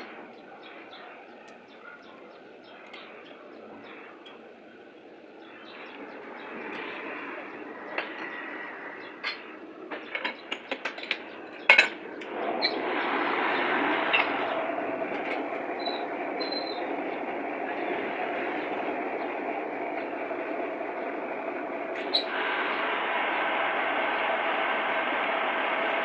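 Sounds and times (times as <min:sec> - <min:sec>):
mechanical whirring with hum: 0:00.0 - 0:26.0
sharp clicks and knocks: 0:09.2 - 0:12.3.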